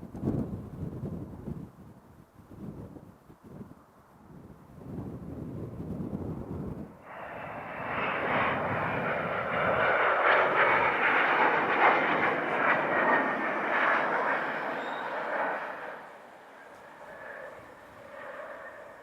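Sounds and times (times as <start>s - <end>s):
jet engines passing: 6.8s - 19.0s.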